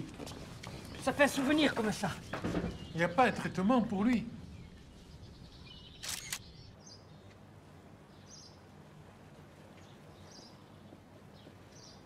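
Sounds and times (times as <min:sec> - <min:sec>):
sharp clicks: 0:06.0 - 0:06.5.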